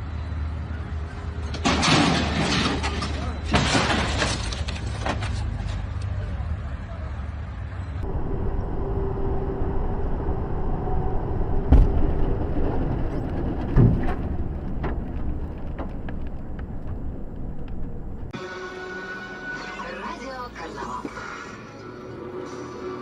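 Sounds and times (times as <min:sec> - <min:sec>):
vehicle road and engine noise: 0:00.0 - 0:18.4
sharp thumps: 0:11.6 - 0:18.3.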